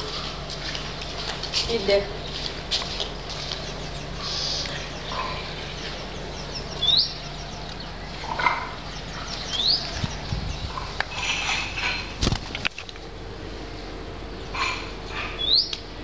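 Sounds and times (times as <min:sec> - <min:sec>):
low background hum: 0:00.0 - 0:16.0
high upward bird chirps: 0:03.2 - 0:11.0.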